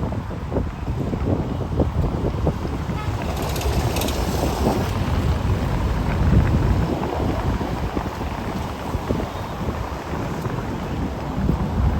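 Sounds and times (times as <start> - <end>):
road traffic rumble: 0.0 - 11.9
wind buffeting microphone: 0.0 - 11.9.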